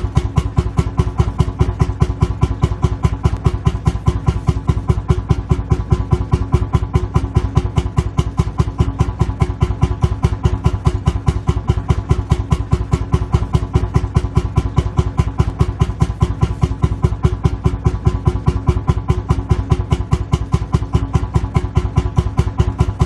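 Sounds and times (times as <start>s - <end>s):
tractor engine idling: 0.0s - 23.0s.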